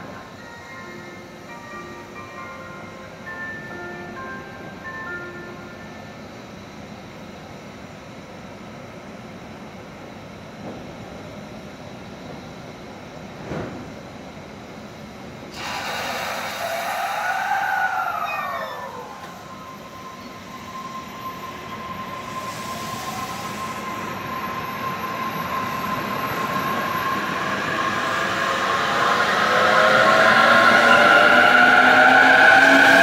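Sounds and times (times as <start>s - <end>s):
electric train motor whine: 15.5s - 33.0s.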